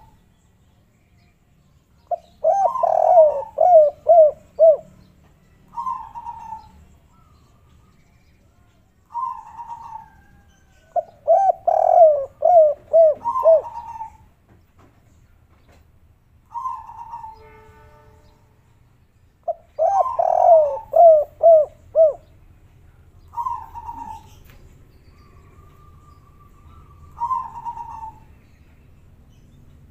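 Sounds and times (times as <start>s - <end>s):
doves cooing: 2.1s - 4.9s, 5.7s - 6.8s, 9.1s - 14.3s, 19.5s - 22.3s, 23.3s - 24.5s, 25.3s - 28.3s.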